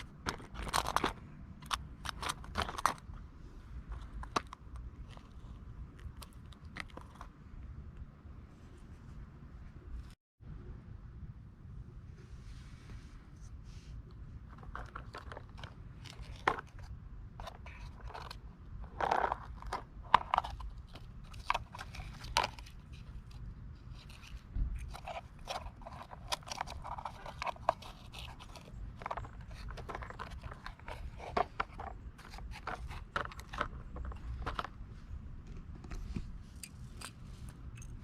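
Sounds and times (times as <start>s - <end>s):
toy parts clicking and scraping: 0.0s - 3.2s, 14.4s - 34.8s.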